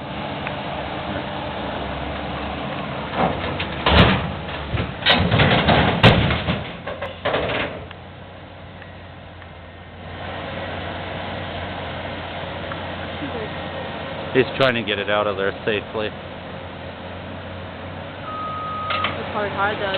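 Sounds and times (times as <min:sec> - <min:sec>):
bulldozer engine running: 0:00.0 - 0:19.9
loud metal clanks and bangs: 0:03.1 - 0:07.9.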